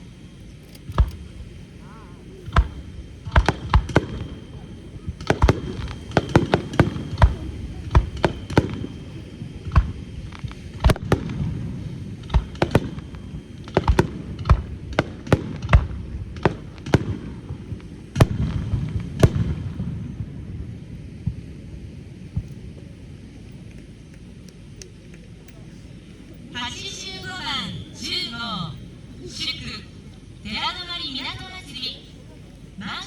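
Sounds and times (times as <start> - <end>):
continuous rumble: 0.0 - 33.0
fireworks bursting: 0.0 - 33.0.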